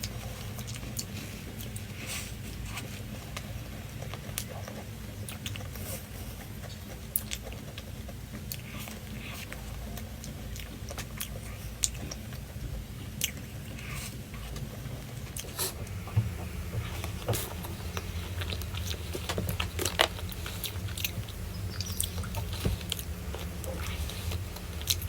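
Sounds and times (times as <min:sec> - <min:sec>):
steady low hum: 0:00.0 - 0:25.0
crunchy bites and chewing: 0:13.1 - 0:25.0.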